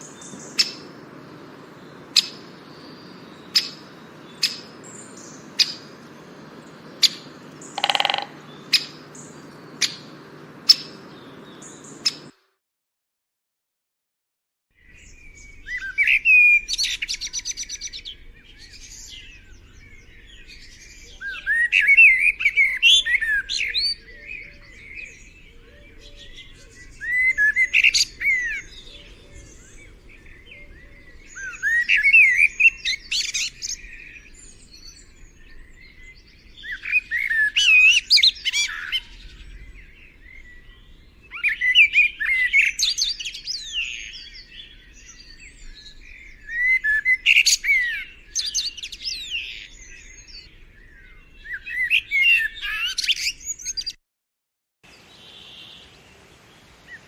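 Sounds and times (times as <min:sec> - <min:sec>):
songbird warbling with trills: 0:00.0 - 0:12.3.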